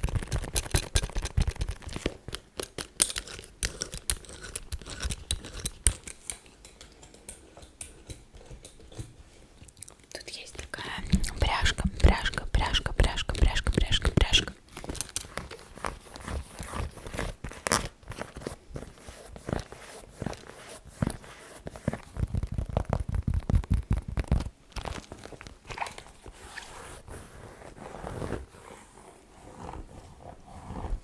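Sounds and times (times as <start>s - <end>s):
fast tapping and scratching: 11.0s - 14.5s.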